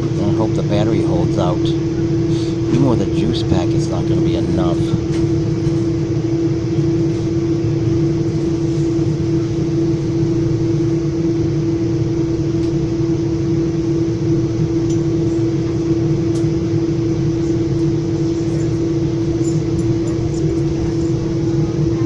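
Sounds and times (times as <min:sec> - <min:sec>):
constant hum: 0:00.0 - 0:22.0.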